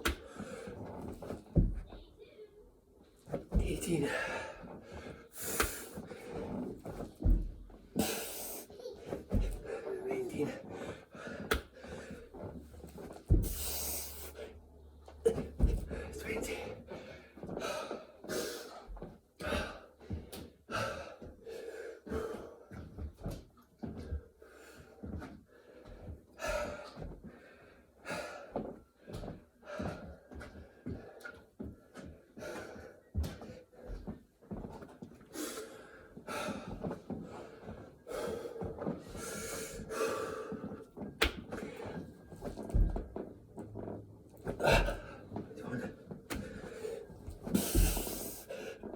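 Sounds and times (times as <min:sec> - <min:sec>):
man breathing heavily: 0:00.1 - 0:01.0, 0:03.8 - 0:08.7, 0:09.3 - 0:12.6, 0:13.3 - 0:14.6, 0:15.3 - 0:22.9, 0:24.1 - 0:34.2, 0:35.3 - 0:42.2, 0:44.5 - 0:48.9
person breathing hard and gasping: 0:08.0 - 0:08.7, 0:46.3 - 0:48.9.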